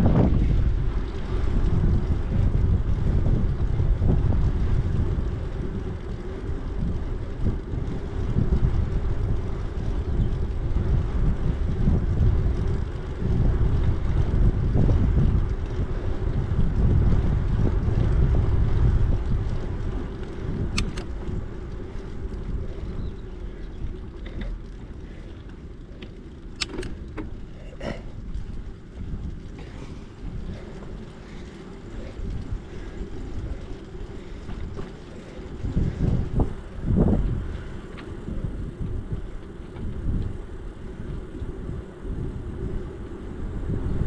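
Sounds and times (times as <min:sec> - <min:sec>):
bicycle rumbling: 0:00.0 - 0:44.0
wind buffeting microphone: 0:00.0 - 0:44.0
sharp clicks or rattles: 0:20.2 - 0:22.4, 0:26.0 - 0:27.6.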